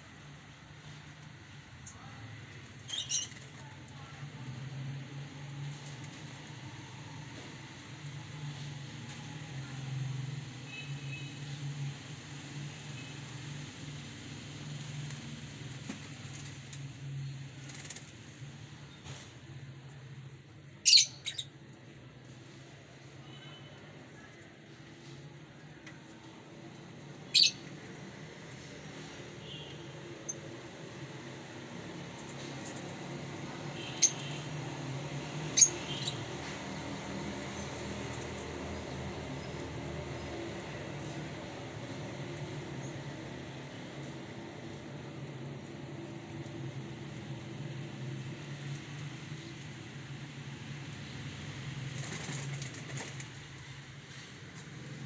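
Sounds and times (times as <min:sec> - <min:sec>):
bird chirping shrilly: 0:20.9 - 0:21.4, 0:27.3 - 0:27.6.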